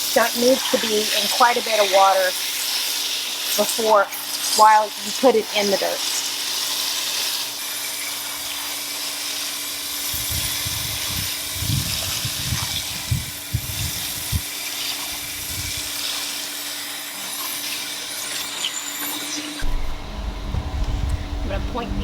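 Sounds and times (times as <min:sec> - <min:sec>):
water from hose splashing on soil: 0:00.0 - 0:19.7
low thuds: 0:19.6 - 0:22.0.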